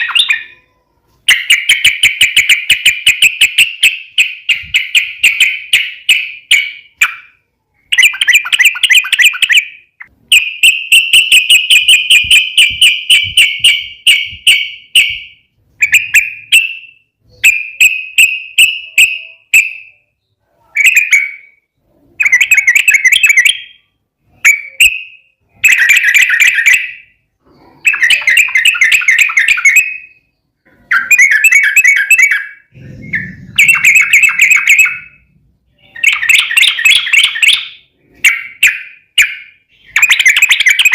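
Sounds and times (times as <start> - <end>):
bulbul singing bubbly phrases: 32.7 - 37.3.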